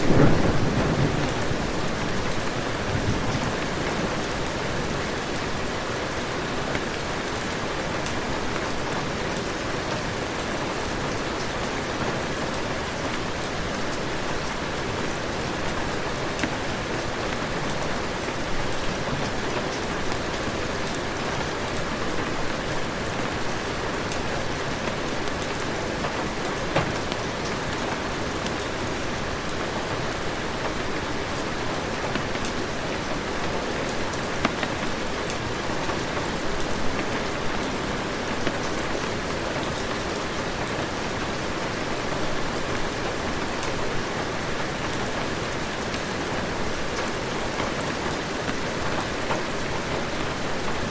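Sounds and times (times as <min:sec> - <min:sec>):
heavy rain falling: 0:00.0 - 0:50.9
sharp taps of raindrops: 0:07.8 - 0:22.6, 0:24.0 - 0:41.3.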